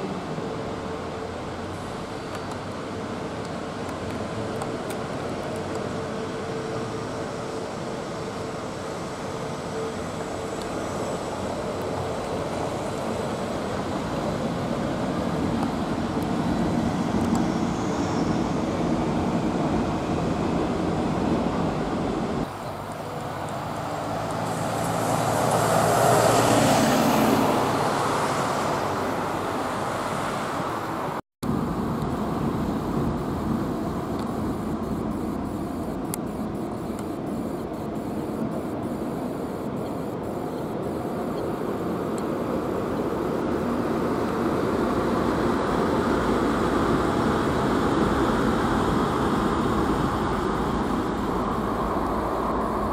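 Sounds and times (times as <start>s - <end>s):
road traffic noise: 0.0s - 52.9s
vehicle passing: 23.2s - 31.0s.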